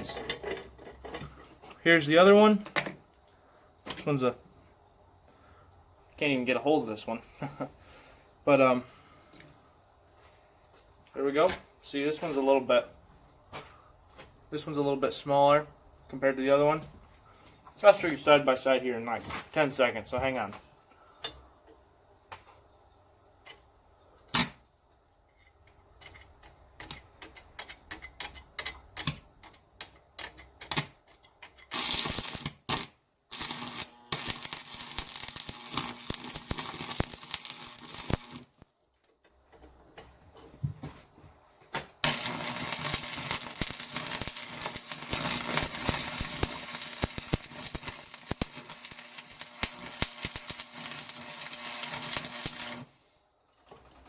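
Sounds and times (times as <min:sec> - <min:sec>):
metal pieces clicking and tapping: 0:25.4 - 0:31.7
arc welding crackle: 0:31.7 - 0:38.7, 0:42.0 - 0:53.0.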